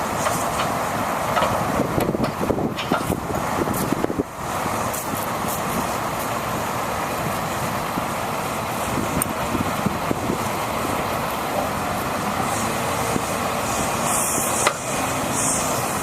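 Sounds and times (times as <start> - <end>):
truck engine drone: 0.0 - 16.0.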